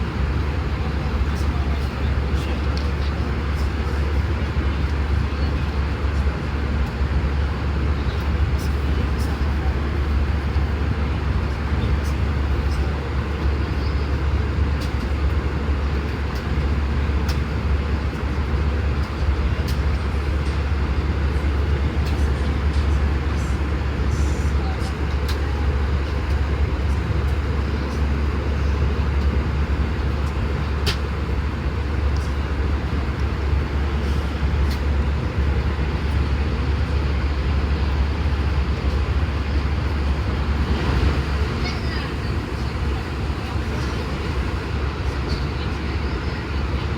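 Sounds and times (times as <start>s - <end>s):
aircraft cabin engine rumble: 0.0s - 46.9s
deep rumble: 25.8s - 45.8s.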